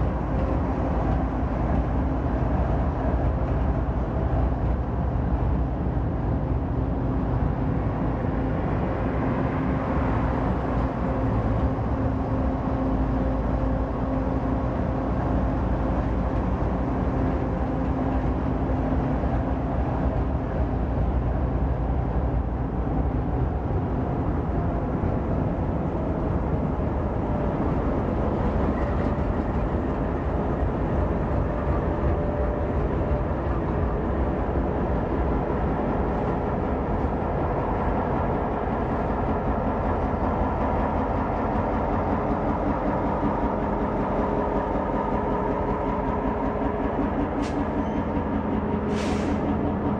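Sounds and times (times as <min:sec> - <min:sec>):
train drones: 0:00.0 - 0:49.9
train wheels rumbling on rail: 0:00.0 - 0:49.9.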